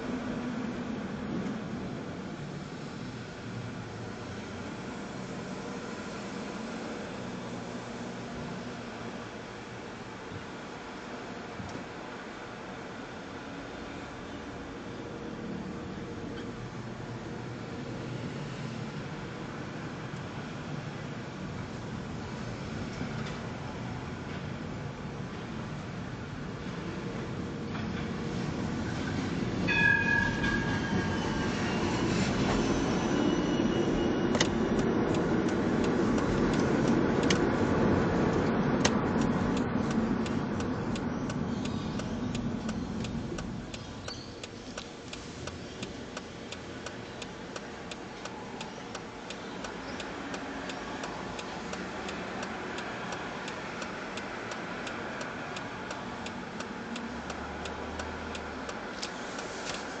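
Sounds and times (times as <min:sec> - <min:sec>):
street noise: 0:00.0 - 1:00.0
steady regular ticking: 0:34.3 - 0:37.7, 0:38.3 - 0:59.8.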